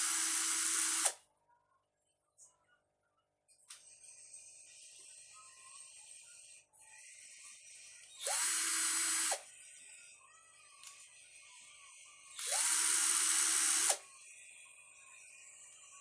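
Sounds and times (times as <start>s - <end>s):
electric eraser motor whirring: 0.0s - 1.2s, 8.2s - 9.4s, 12.4s - 14.0s.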